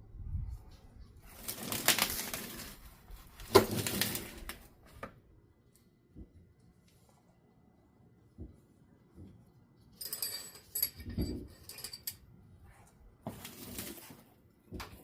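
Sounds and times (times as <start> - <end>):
rustling and scraping: 9.1 - 15.0.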